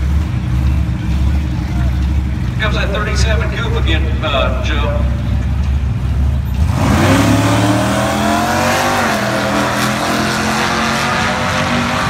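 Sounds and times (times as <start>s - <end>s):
car engine accelerating hard: 5.0s - 12.0s.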